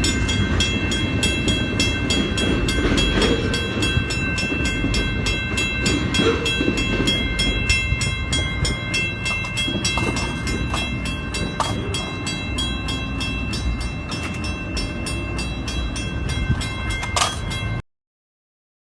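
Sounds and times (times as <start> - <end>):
train rumbling past: 0.0 - 17.8
fast regular clanging: 8.7 - 12.4.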